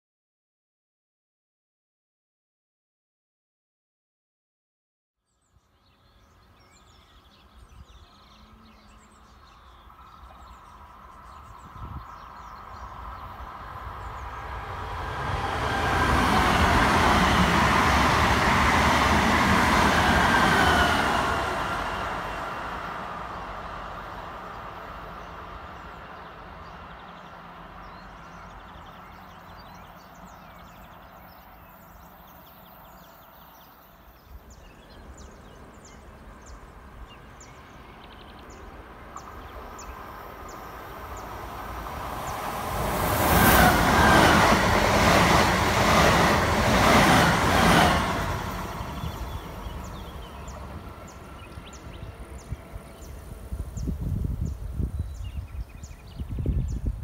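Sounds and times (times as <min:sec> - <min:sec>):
train wheels rushing past on rails: 0:10.2 - 0:32.2, 0:33.3 - 0:56.3.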